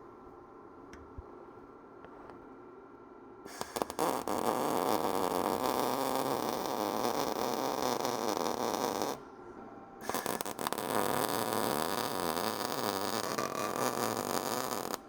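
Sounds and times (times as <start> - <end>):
welder arc crackling and buzzing: 3.5 - 9.2, 10.0 - 15.0.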